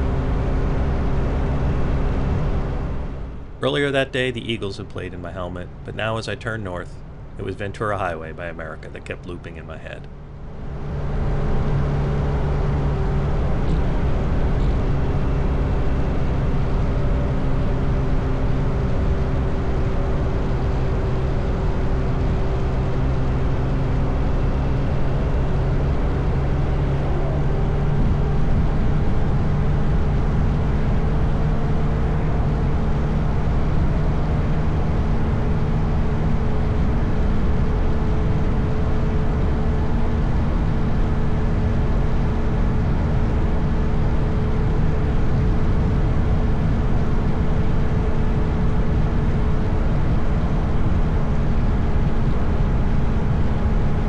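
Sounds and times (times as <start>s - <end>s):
road and wind noise: 0.0s - 54.0s
motorcycle engine cruising: 10.5s - 53.1s.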